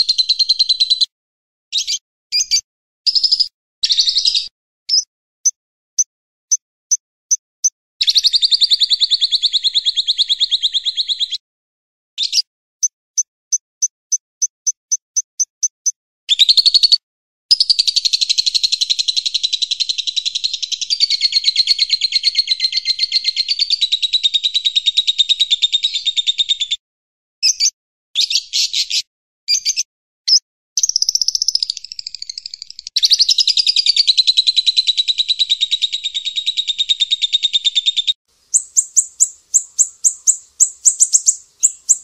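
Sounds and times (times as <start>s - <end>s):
songbird chirps and trills: 15.2s - 26.1s, 38.0s - 42.0s.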